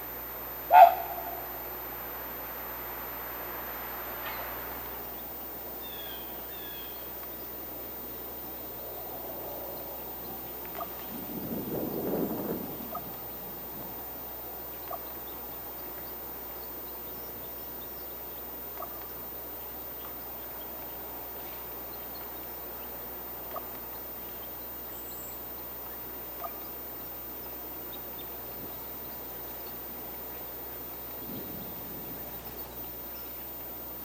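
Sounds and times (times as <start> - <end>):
steady outdoor hiss: 0.0 - 34.0
short bird calls: 0.6 - 1.7, 4.0 - 7.1
faint high ticks: 7.0 - 7.5, 10.5 - 11.0, 18.7 - 19.2, 20.0 - 22.4.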